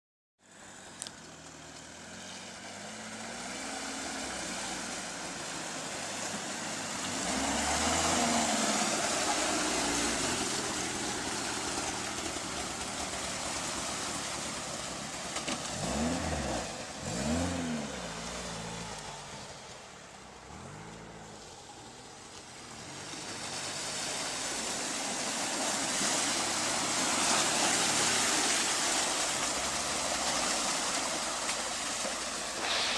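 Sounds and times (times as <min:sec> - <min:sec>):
tyre and road noise: 0:00.4 - 0:32.9
car engine revving: 0:01.9 - 0:13.8, 0:14.4 - 0:19.8.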